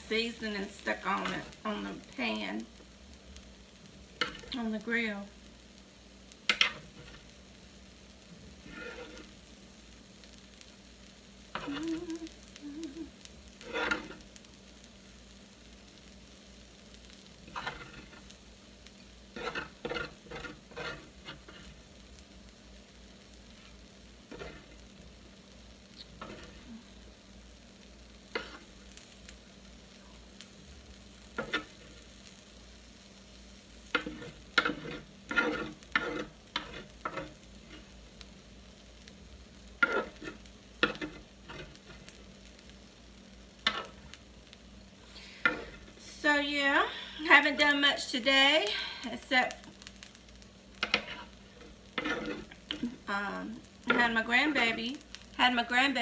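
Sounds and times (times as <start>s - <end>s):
grill pan sizzling: 0.0s - 56.0s
utensil scraping and clinking on pan: 0.3s - 2.0s, 4.2s - 4.6s, 6.5s - 7.3s, 8.6s - 9.4s, 11.6s - 12.0s, 13.6s - 14.2s, 17.4s - 18.3s, 19.3s - 21.8s, 24.3s - 24.8s, 26.0s - 26.8s, 28.3s - 28.8s, 31.3s - 32.1s, 33.9s - 38.0s, 39.8s - 42.2s, 43.6s - 44.2s, 45.4s - 46.0s, 50.8s - 54.8s.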